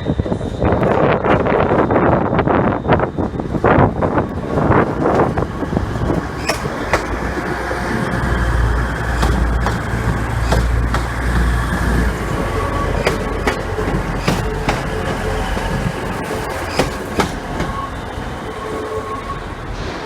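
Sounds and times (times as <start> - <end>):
train rumbling: 0.0 - 20.0
wheels clacking over rail joints: 4.2 - 20.0.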